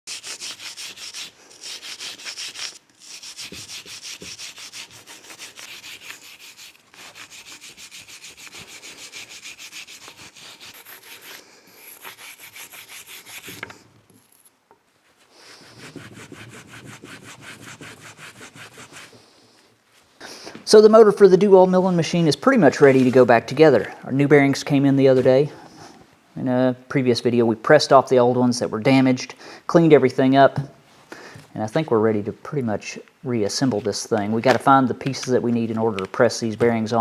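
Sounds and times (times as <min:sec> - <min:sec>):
rubbing strokes: 0:00.1 - 0:19.6.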